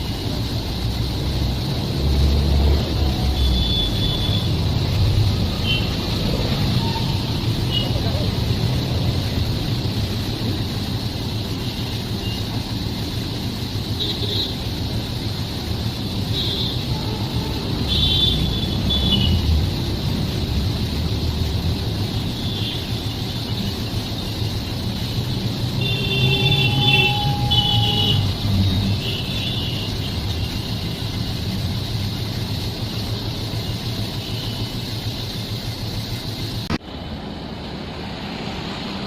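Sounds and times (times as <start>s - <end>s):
train rumbling: 0.0s - 39.0s
high-pitched train squeals: 6.2s - 8.0s, 26.2s - 28.9s.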